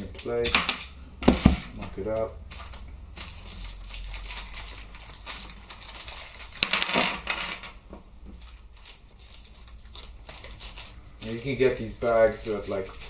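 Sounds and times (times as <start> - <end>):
small metal parts clinking: 2.5 - 7.8, 8.4 - 13.0.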